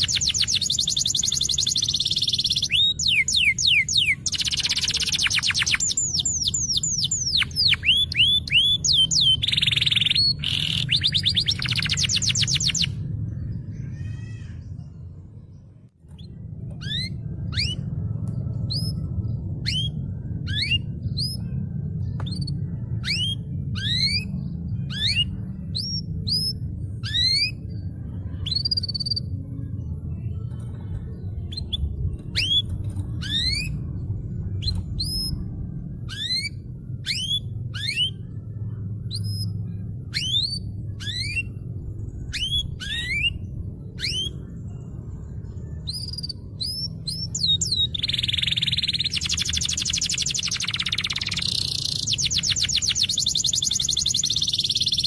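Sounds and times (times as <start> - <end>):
canary chirping: 0.0 - 13.0, 36.1 - 38.3, 39.1 - 44.5, 45.8 - 55.0
low background rumble: 0.0 - 55.0.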